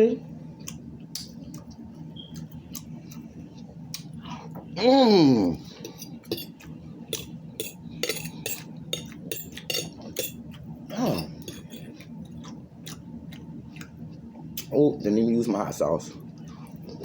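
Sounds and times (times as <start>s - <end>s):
voice humming: 4.8s - 5.7s, 10.9s - 11.4s
cutlery clinking against dishes: 5.9s - 6.6s, 7.2s - 10.4s, 11.4s - 11.9s.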